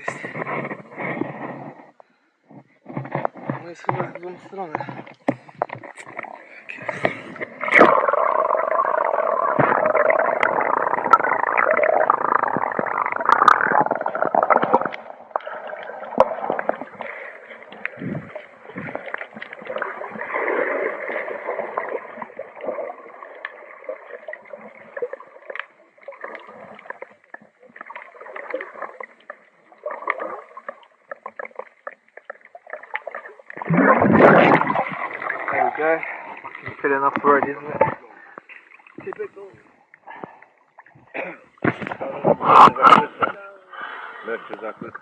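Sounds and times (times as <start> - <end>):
muffled water splashing and gurgling: 0.0 - 45.0
small knocks and crackles: 0.1 - 7.5.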